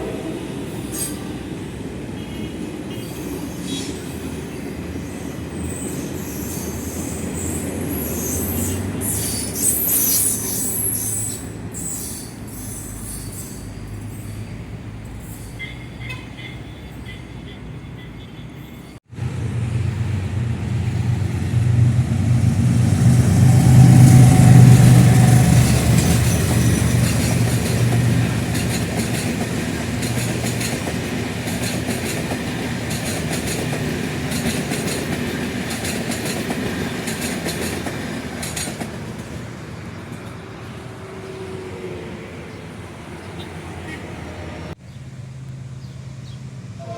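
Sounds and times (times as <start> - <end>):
diesel locomotive passing: 0.0 - 46.9
train rumble with high squeal: 0.0 - 46.9
wheels clicking over rail joints: 23.8 - 39.5.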